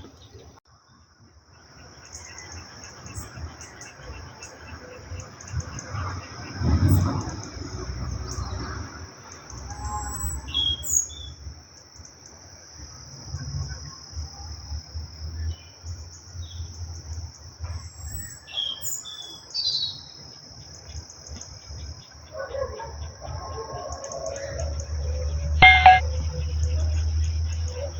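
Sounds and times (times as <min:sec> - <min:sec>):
insect chorus: 0:01.5 - 0:27.9
bird chirps: 0:25.6 - 0:26.0.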